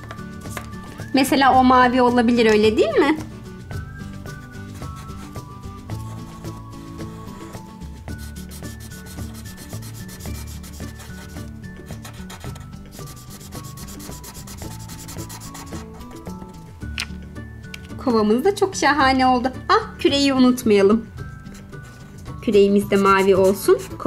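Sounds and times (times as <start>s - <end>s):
marker scratching on paper: 4.6s - 7.6s, 8.2s - 16.0s, 22.9s - 24.0s.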